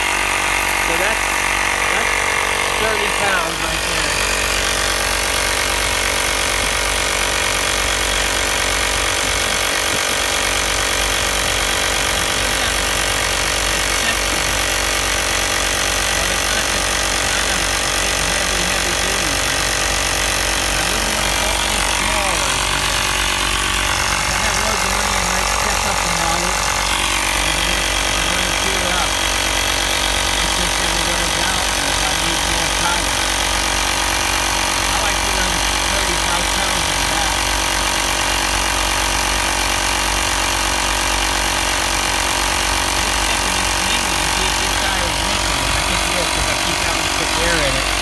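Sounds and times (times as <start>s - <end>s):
air compressor rattling: 0.0s - 48.0s.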